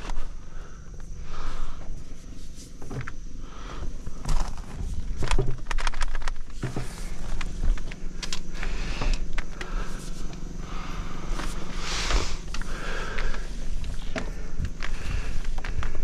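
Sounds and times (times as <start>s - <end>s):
machine engine running: 3.9s - 16.0s.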